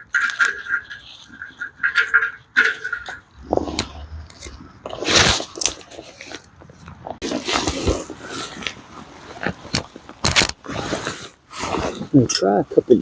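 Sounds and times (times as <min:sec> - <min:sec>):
crunching and crinkling: 0:00.0 - 0:13.0.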